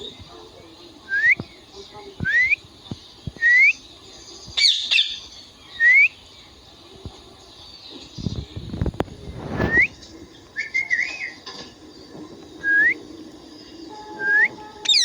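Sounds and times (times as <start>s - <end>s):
parakeet rising whistles: 12.6s - 13.0s.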